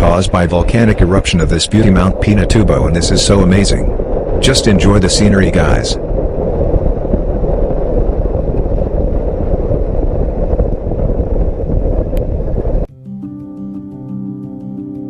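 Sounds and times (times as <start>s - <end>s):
off-road vehicle rumble: 0.0s - 12.9s
background music: 12.9s - 15.0s.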